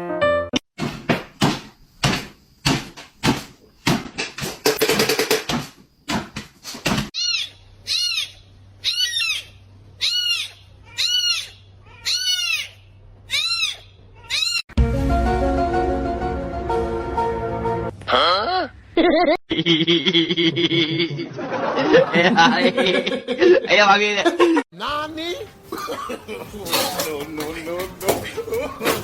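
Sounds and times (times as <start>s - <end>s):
sharp knocks and clatter: 0.8s - 7.1s.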